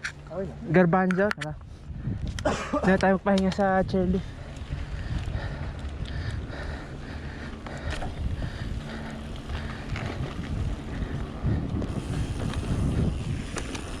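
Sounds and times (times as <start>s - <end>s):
wind buffeting microphone: 1.4s - 14.0s
bike tyres rumbling on dirt: 1.9s - 14.0s
bike knocks and rattles: 11.6s - 14.0s.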